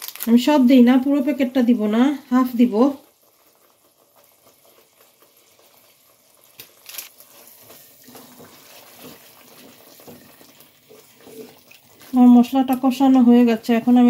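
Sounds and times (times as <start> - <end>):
spice paste sizzling in oil: 0.0 - 14.0
spatula stirring and scraping: 3.2 - 14.0.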